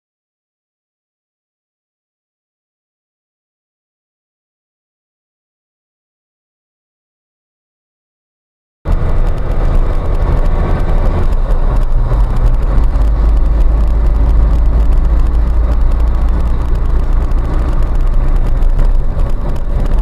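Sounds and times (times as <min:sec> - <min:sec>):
vehicle engine and road rumble: 0:08.9 - 0:20.0.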